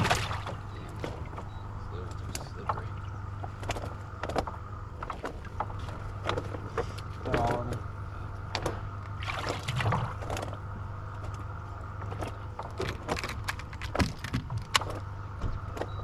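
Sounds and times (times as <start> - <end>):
fish splashing in water: 0.0 - 1.2, 9.1 - 10.6
steady low hum: 0.0 - 16.0.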